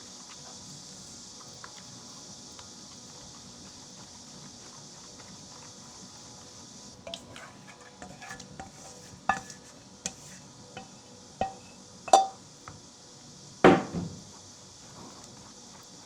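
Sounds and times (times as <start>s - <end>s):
steady high hiss: 0.0s - 16.0s
utensils and bowls clinking: 11.4s - 12.4s.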